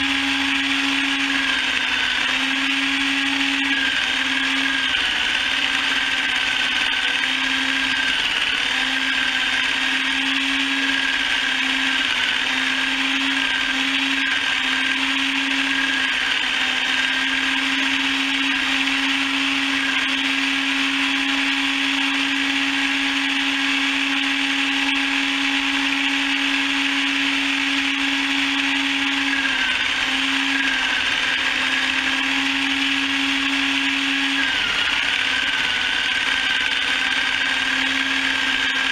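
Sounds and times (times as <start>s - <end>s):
chicken plucker motor whirring: 0.0s - 38.9s.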